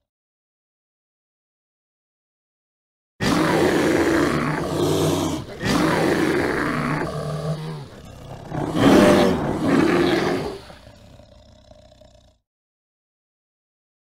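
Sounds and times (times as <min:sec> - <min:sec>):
bear roaring: 0:03.2 - 0:12.4.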